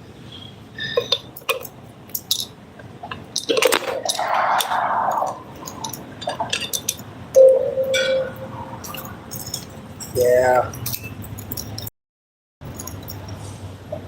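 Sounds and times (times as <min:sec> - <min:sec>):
bike lock and keys clinking: 0:01.0 - 0:02.5, 0:03.3 - 0:11.9, 0:12.6 - 0:13.4.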